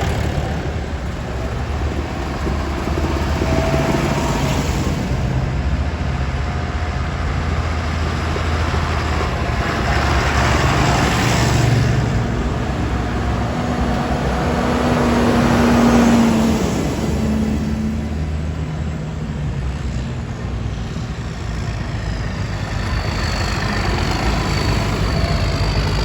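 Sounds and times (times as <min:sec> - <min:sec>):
tractor engines passing: 0:00.0 - 0:26.0.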